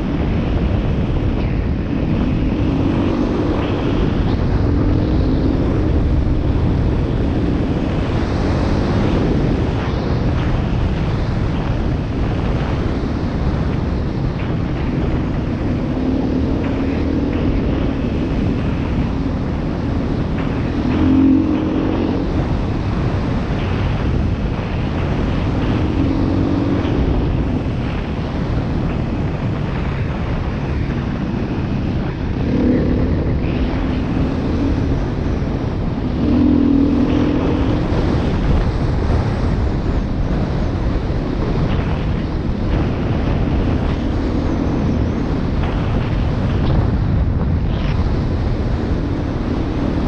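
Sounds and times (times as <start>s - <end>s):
motorcycle engine running: 0.0s - 50.0s
wind noise on microphone: 0.0s - 50.0s.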